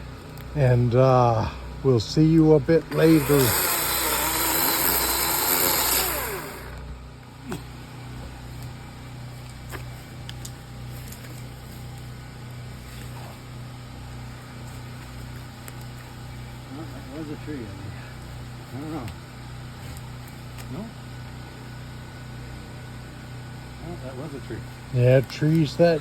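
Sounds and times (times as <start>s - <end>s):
chainsaw revving and idling: 0.8s - 9.1s.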